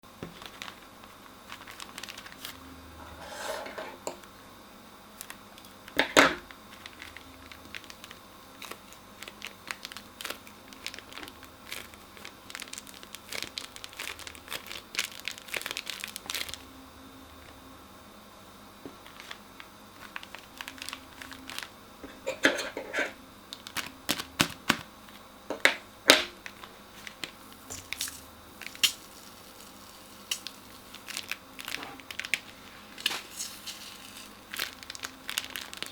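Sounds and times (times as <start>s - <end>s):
crunchy slime crackling: 0.1s - 2.6s, 5.2s - 16.7s, 18.9s - 21.8s, 23.5s - 25.3s, 26.2s - 35.9s
plastic piping bags crinkling: 0.1s - 2.6s, 5.2s - 16.7s, 18.9s - 22.3s, 23.5s - 25.3s, 26.1s - 35.9s.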